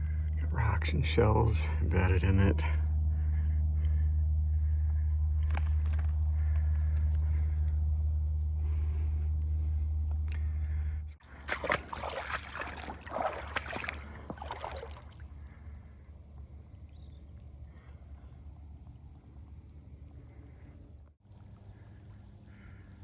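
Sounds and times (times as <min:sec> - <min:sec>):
oars splashing water: 0:11.2 - 0:16.0
water lapping: 0:11.2 - 0:20.9.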